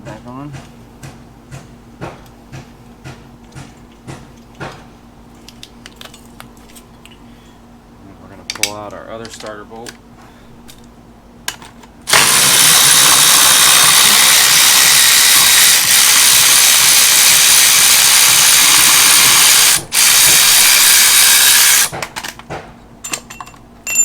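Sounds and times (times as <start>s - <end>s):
cordless power tool running: 12.1s - 22.0s
light metal clinks: 23.0s - 24.0s.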